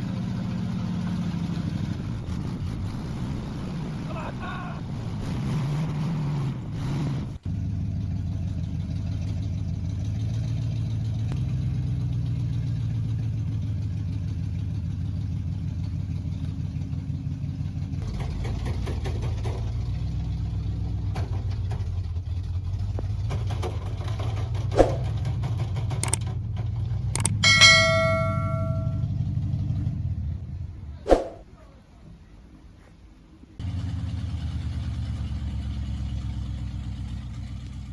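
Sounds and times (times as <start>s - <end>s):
vehicle engine running: 0.0s - 31.0s, 33.6s - 37.9s
metallic clang: 27.2s - 29.1s.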